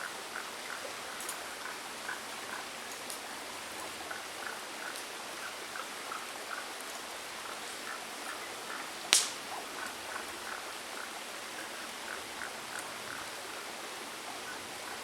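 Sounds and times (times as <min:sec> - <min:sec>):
stream murmuring: 0:00.0 - 0:15.0
sharp crack: 0:09.1 - 0:09.4.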